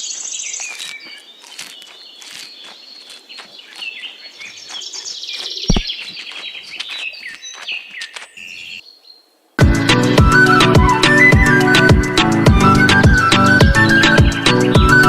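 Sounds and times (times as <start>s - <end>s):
small birds chirping and trilling: 0.0s - 9.4s.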